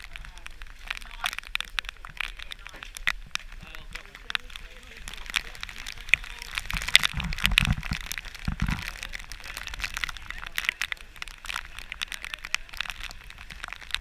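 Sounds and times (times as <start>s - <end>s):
heavy rain pattering: 0.0s - 14.0s.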